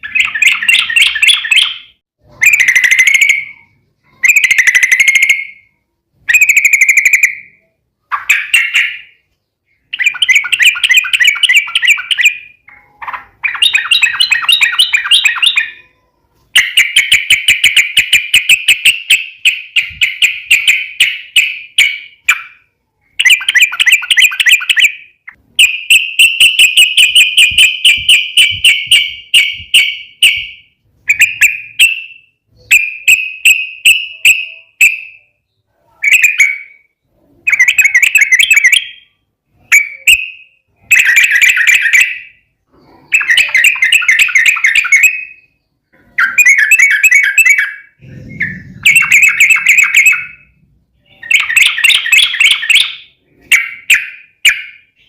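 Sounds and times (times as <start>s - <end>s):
bird singing bubbling notes: 46.2s - 53.9s.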